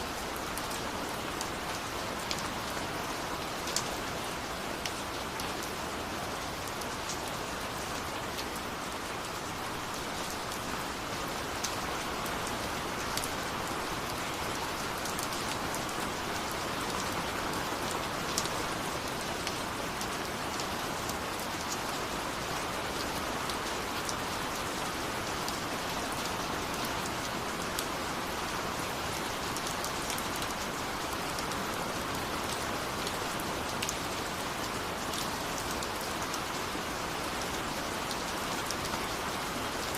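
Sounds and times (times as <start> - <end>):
raindrops ticking on a surface: 0.0 - 39.9
steady rain falling: 0.0 - 39.9.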